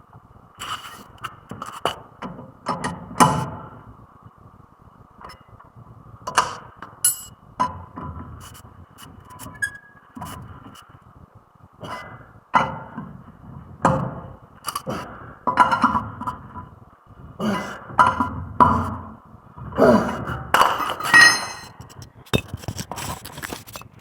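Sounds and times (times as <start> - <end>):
metal tools clinking and scraping: 7.0 - 7.3, 20.8 - 24.0.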